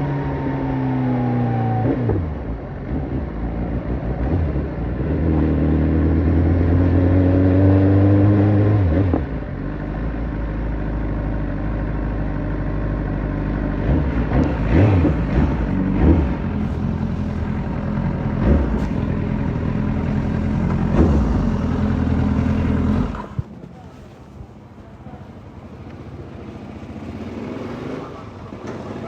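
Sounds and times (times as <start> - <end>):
motorcycle engine revving: 0.0 - 29.0
motorcycle throttle blips: 8.2 - 29.0.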